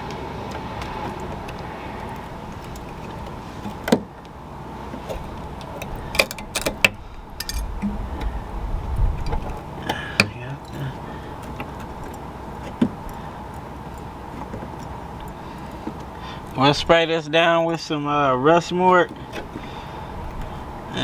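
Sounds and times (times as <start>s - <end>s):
faint steady hum: 0.0s - 21.0s
low rumble: 6.9s - 9.8s.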